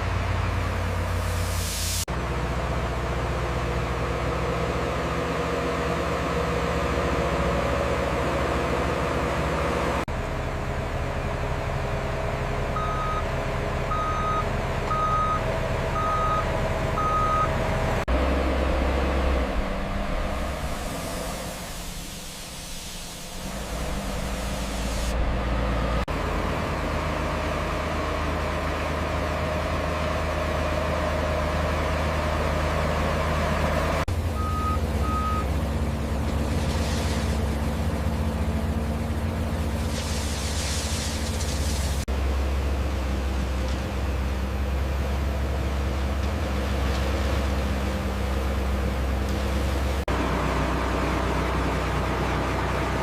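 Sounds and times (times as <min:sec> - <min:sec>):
heavy machine engine running: 0:00.0 - 0:53.0
reversing alarm beeping: 0:13.9 - 0:17.6, 0:34.4 - 0:35.5.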